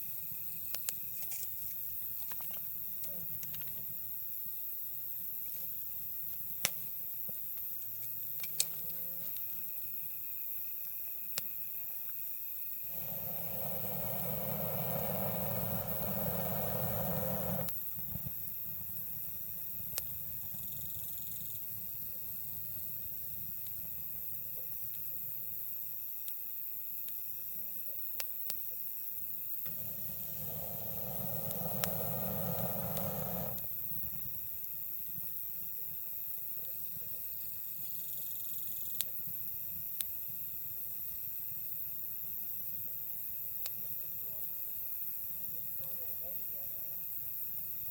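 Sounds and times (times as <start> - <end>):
insects chirring: 0.0 - 47.9
campfire crackling: 12.8 - 20.6, 29.5 - 35.2
low rushing sound: 12.9 - 17.7, 29.7 - 33.6.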